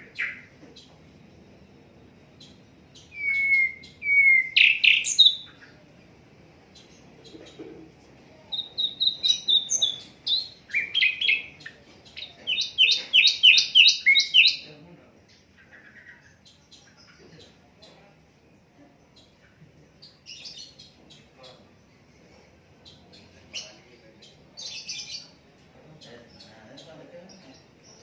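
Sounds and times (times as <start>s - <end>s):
flycatcher singing: 0.0s - 5.9s, 8.4s - 17.6s.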